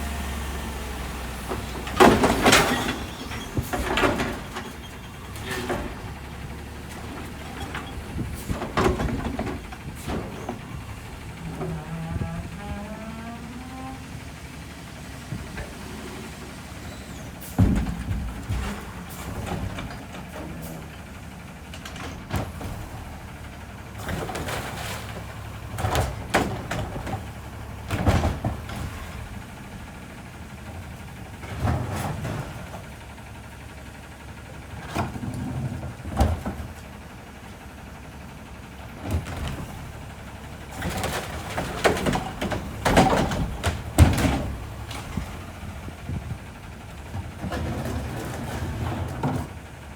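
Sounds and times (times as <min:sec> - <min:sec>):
garbage truck engine running: 0:00.0 - 0:49.9
metal bangs and clatters: 0:39.2 - 0:49.7.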